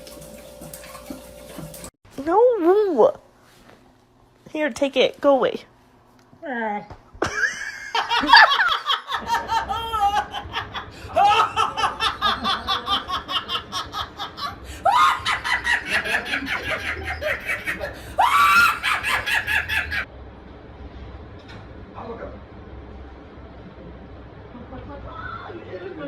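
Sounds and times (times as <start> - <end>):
person laughing hard: 7.2 - 20.0.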